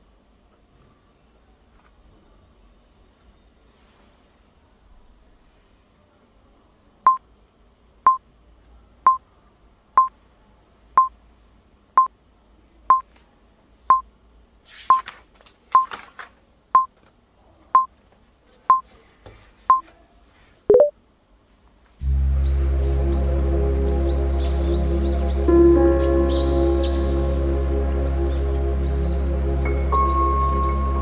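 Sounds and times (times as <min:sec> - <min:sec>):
lower two-note blip: 0:20.7 - 0:20.9, 0:22.0 - 0:31.0
short electronic beeps: 0:20.7 - 0:20.9.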